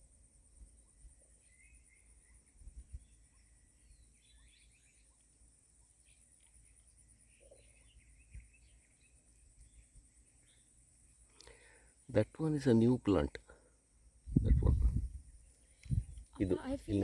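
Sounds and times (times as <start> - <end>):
soft low thumps: 14.3 - 17.0.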